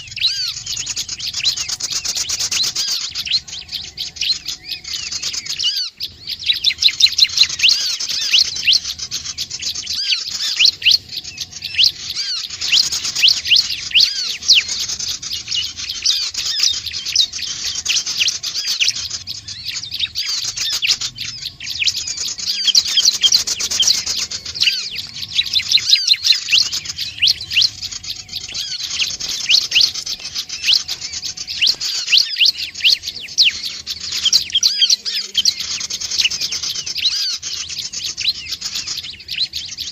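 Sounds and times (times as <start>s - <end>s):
small songbird chirps and trills: 0.0s - 39.9s.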